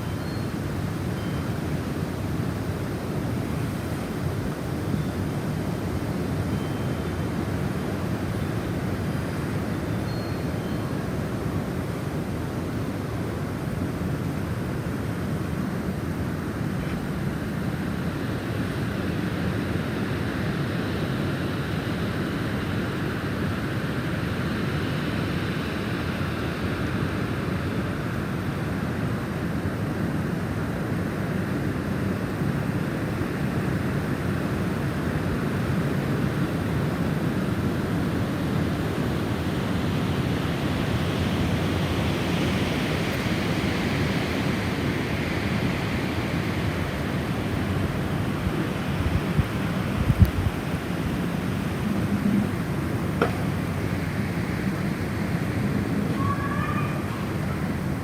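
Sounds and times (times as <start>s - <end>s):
snowstorm wind blowing: 0.0s - 10.1s, 10.8s - 58.0s
thin whistling wind tone: 0.0s - 12.9s, 34.2s - 58.0s.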